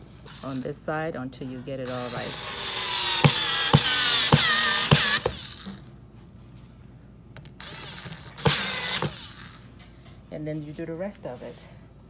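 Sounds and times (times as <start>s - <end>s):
power drill whirring: 0.0s - 0.8s, 1.8s - 5.9s, 7.6s - 9.7s.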